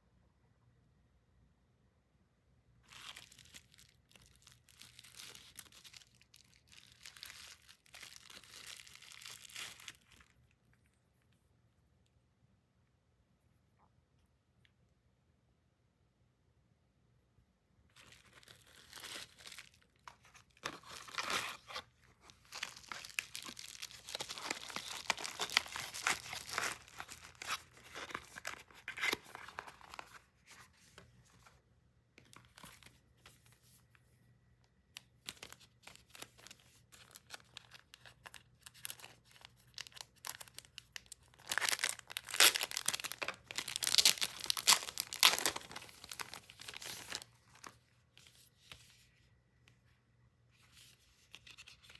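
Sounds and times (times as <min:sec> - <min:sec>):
packaging tearing and crinkling: 0:02.9 - 0:10.3, 0:18.0 - 0:30.2, 0:35.3 - 0:47.8.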